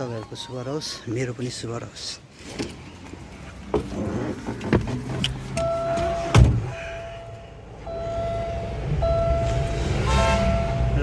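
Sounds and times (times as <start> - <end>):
car door shutting: 3.7 - 6.8
electronic warning beeps: 5.6 - 11.0.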